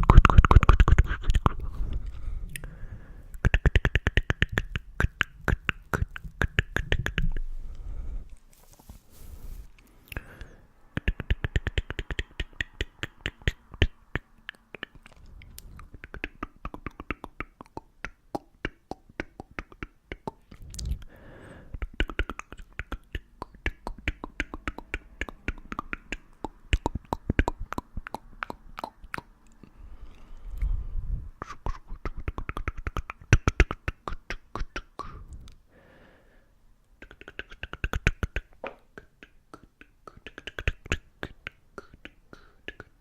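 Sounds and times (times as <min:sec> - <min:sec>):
wet mouth clicks and pops: 0:00.0 - 0:02.7, 0:03.3 - 0:07.5, 0:10.1 - 0:21.1, 0:21.7 - 0:29.8, 0:31.4 - 0:35.6, 0:37.0 - 0:43.0.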